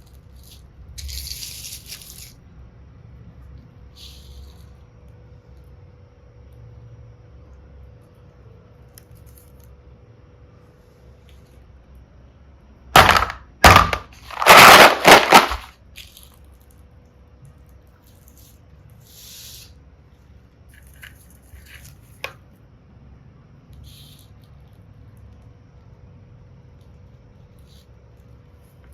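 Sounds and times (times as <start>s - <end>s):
plastic pieces rattling: 0.2s - 2.4s, 13.0s - 16.5s
plastic pieces clicking: 13.0s - 16.4s.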